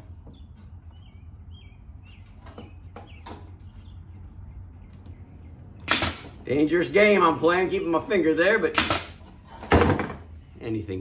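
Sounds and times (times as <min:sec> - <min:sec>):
small bird chirping: 0:00.3 - 0:05.9.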